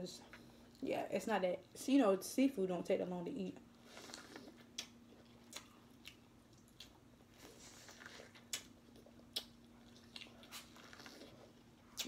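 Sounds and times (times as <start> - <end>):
faint steady hum: 0.0 - 12.0
chewing corn on the cob: 4.0 - 12.0.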